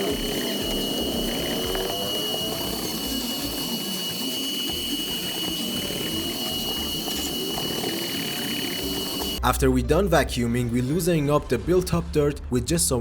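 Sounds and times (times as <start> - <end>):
vacuum cleaner running: 0.0 - 9.4.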